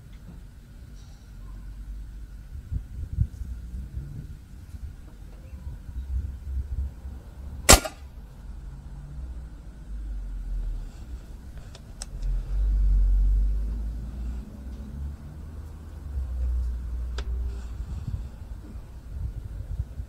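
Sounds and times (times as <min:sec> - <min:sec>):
low rumble: 0:01.8 - 0:20.0
air rifle shot: 0:07.7 - 0:08.1.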